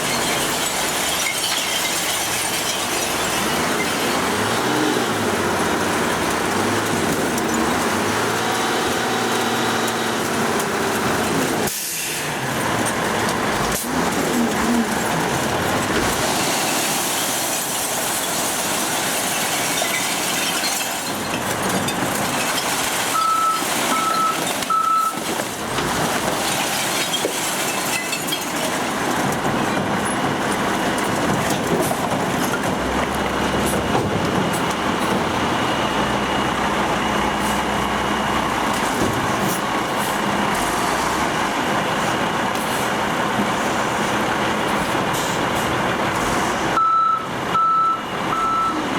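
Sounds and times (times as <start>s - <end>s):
truck engine running: 0.0s - 17.2s, 28.7s - 48.9s
reversing beeps: 23.2s - 25.2s, 46.8s - 48.8s.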